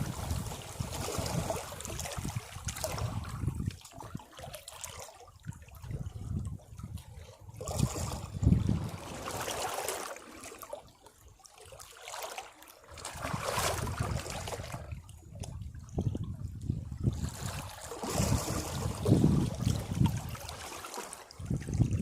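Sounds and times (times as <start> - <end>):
sea waves breaking on rocks: 0.0 - 3.7, 7.7 - 10.6, 12.0 - 14.9, 16.6 - 22.0.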